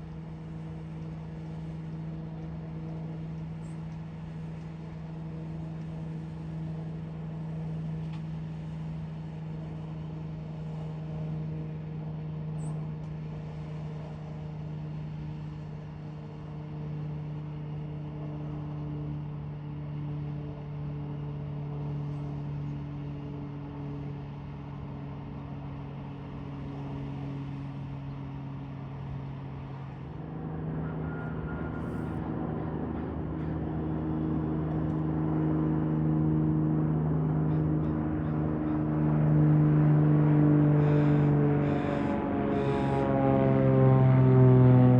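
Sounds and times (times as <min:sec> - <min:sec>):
propeller aircraft engine humming: 0:00.0 - 0:44.9.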